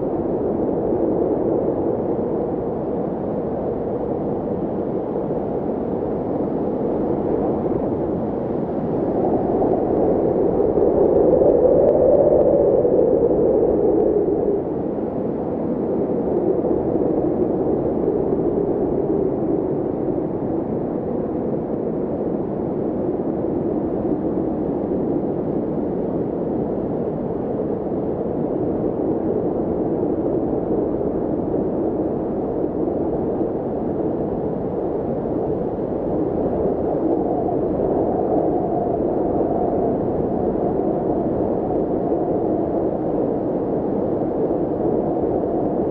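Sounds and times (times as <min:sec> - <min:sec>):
steady rushing noise: 0:06.5 - 0:25.6.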